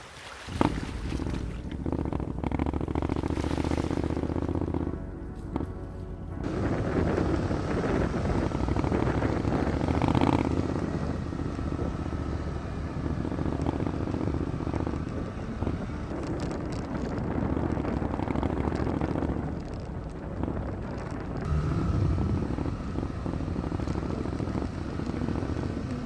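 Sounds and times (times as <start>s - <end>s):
wind buffeting microphone: 0.4s - 26.0s
motorcycle engine drone: 0.5s - 26.0s.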